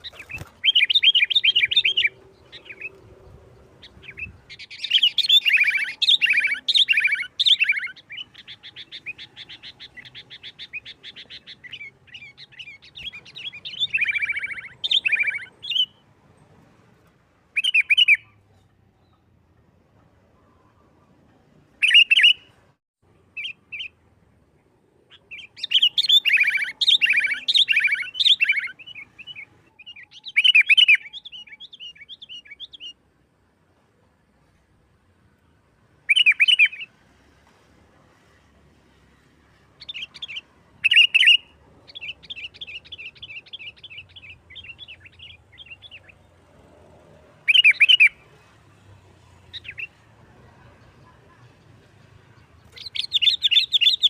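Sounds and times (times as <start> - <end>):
bulbul harsh chattering song: 0.0 - 16.1, 25.0 - 33.1, 47.3 - 54.0.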